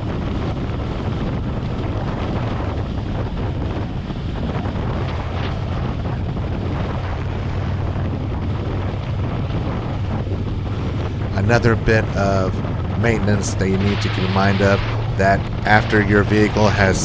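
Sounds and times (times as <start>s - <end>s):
wind rushing over microphone: 10.7s - 17.0s.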